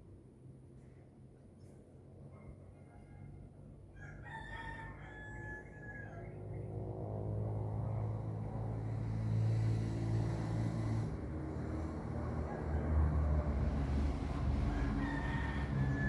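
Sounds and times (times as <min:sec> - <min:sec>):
rooster crowing: 0:04.2 - 0:06.2, 0:12.4 - 0:16.0
vehicle engine hum approaching: 0:06.2 - 0:16.0.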